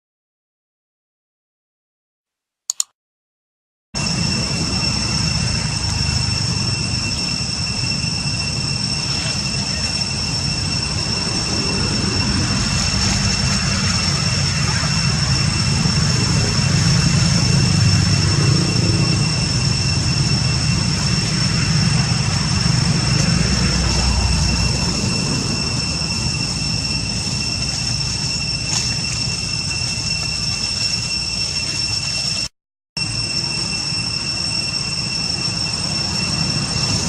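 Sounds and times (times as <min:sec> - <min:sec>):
engine rumble: 0:04.0 - 0:32.3
high-pitched whine: 0:04.0 - 0:37.0.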